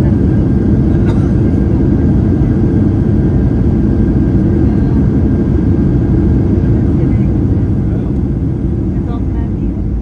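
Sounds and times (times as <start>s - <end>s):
airplane cabin engine rumble: 0.0s - 10.0s.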